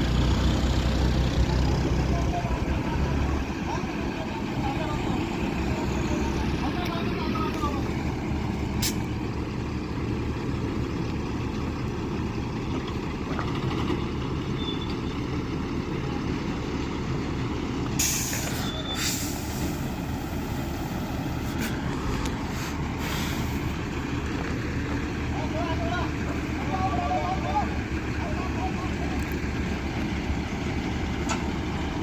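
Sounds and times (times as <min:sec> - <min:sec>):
diesel engine rumbling: 0:00.0 - 0:32.0
air brakes hissing: 0:08.8 - 0:09.1, 0:18.0 - 0:20.1, 0:22.4 - 0:23.8.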